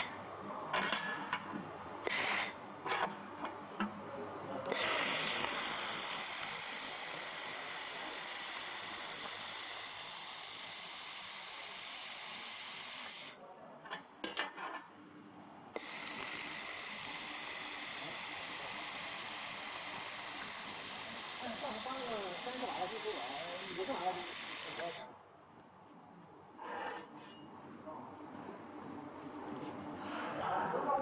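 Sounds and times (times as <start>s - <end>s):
laser welder hiss and whine: 2.1s - 2.6s, 4.7s - 13.4s, 15.8s - 25.1s.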